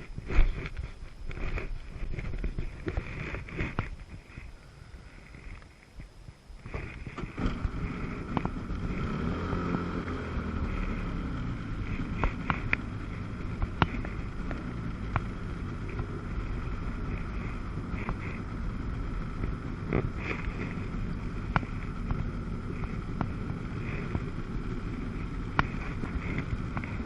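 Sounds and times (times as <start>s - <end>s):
wind on the microphone: 0.0s - 27.0s
jet ski engine running: 6.7s - 27.0s.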